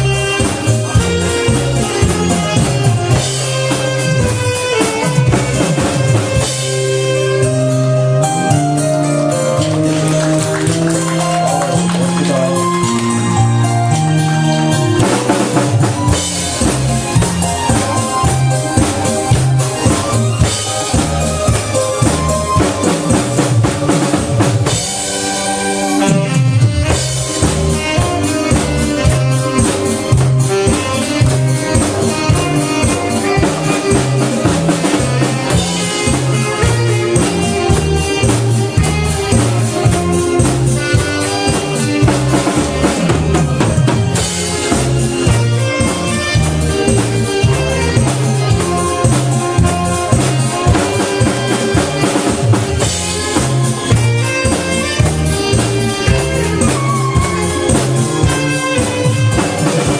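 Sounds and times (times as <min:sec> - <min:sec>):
drum kit beat: 0:00.0 - 0:59.9
saxophone: 0:00.0 - 0:59.9.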